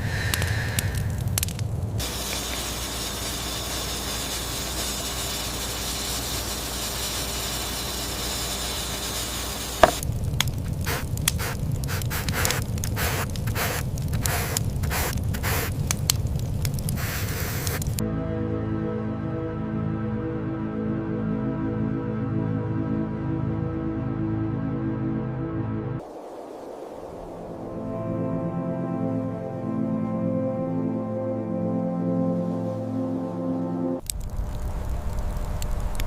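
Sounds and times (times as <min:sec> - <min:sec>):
steady hiss: 0:00.0 - 0:18.0, 0:26.0 - 0:27.9, 0:34.0 - 0:36.0
crackles and crunches: 0:00.3 - 0:02.8, 0:09.8 - 0:18.0, 0:34.0 - 0:36.0
music: 0:18.0 - 0:26.0, 0:27.5 - 0:34.1.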